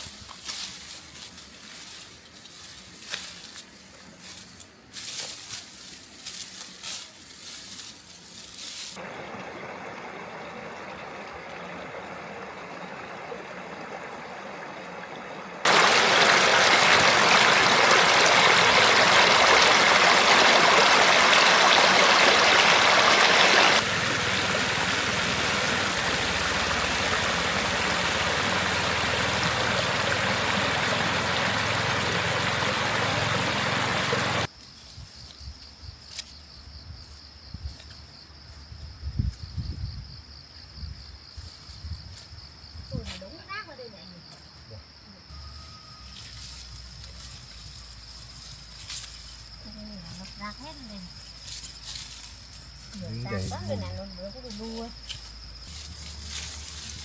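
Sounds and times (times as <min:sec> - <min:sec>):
stream water rushing: 0:09.0 - 0:34.5.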